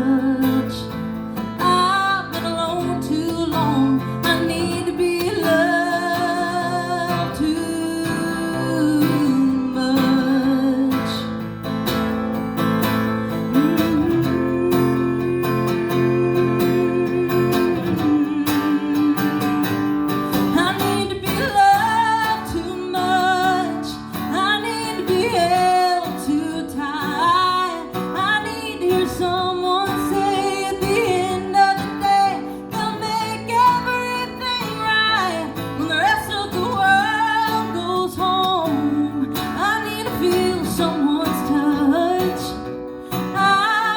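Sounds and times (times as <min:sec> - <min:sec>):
woman singing with vibrato: 0:00.0 - 0:11.4, 0:13.2 - 0:43.9
acoustic guitar: 0:00.0 - 0:43.9.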